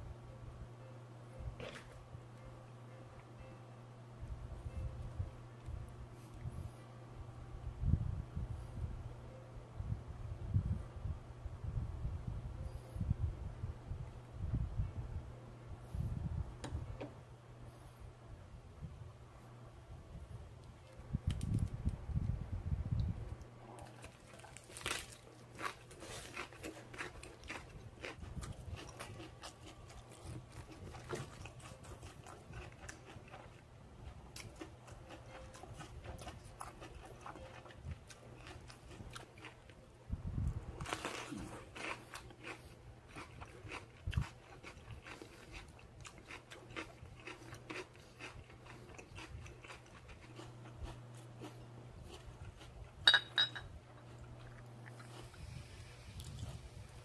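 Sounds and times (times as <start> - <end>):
person chewing crunchy food: 23.7 - 39.8, 40.5 - 53.0, 54.0 - 56.7.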